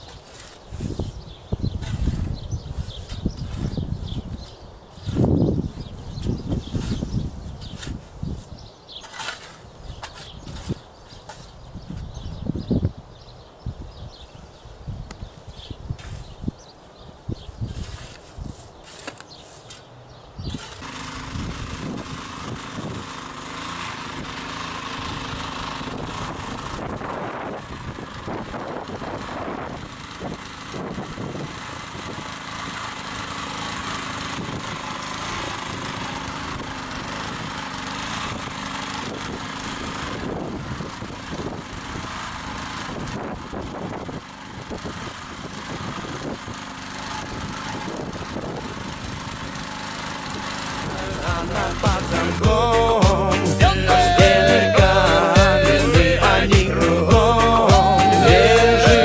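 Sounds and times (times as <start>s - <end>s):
small petrol engine running: 20.4s - 59.0s.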